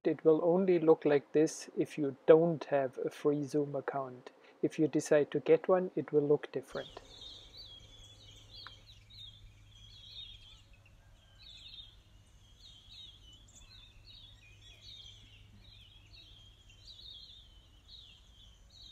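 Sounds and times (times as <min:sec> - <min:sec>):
low steady hum: 0:00.0 - 0:18.9
birds chirping and trilling: 0:05.9 - 0:18.9.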